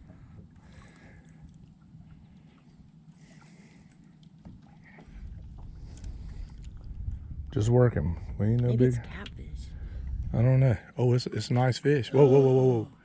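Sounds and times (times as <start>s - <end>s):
water sloshing: 0.0s - 10.4s
faint low rumble: 0.0s - 13.0s.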